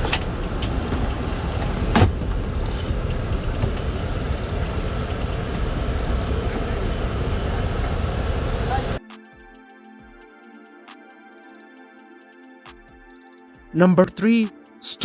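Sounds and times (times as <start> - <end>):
moving vehicle rumble: 0.0 - 9.0.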